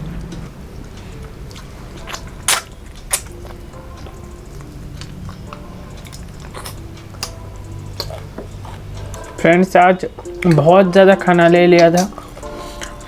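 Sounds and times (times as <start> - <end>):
low steady hum: 0.0 - 13.0
chewing and biting: 1.2 - 7.4, 8.0 - 9.3.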